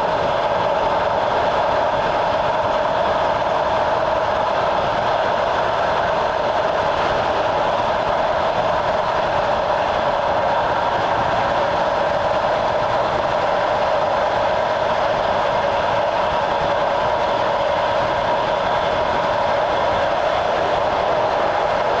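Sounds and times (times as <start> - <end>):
train rumble and rail noise: 0.0 - 22.0.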